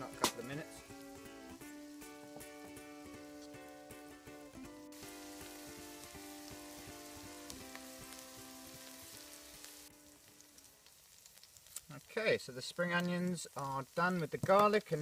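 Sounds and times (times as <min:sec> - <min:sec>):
background music with held notes: 0:00.0 - 0:10.8
onions sizzling in hot oil: 0:00.0 - 0:15.0.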